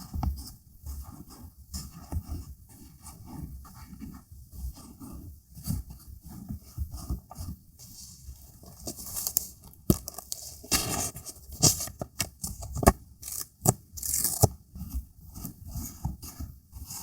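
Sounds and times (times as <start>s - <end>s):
paper rustling and peeling: 7.8s - 14.5s.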